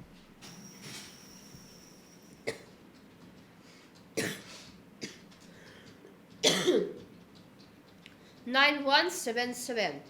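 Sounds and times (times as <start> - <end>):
person coughing: 2.5 - 2.7, 4.2 - 5.2, 6.4 - 7.0.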